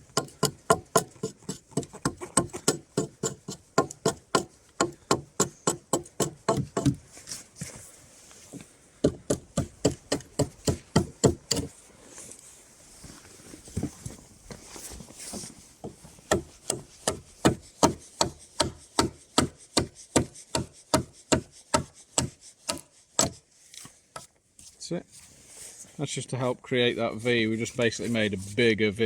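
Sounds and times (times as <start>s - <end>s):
tool chopping into wood: 0.0s - 7.0s, 9.0s - 11.7s, 16.3s - 23.4s.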